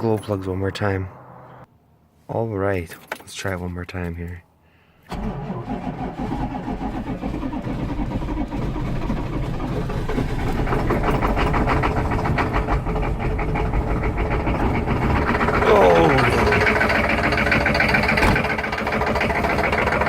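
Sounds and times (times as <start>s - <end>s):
diesel engine cranking on starter: 5.1s - 20.0s
diesel engine running rough: 5.2s - 20.0s.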